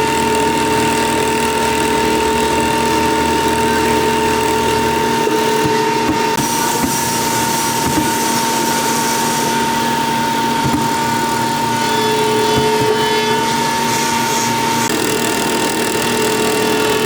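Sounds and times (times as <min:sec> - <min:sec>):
power tool motor whining: 0:00.0 - 0:17.0.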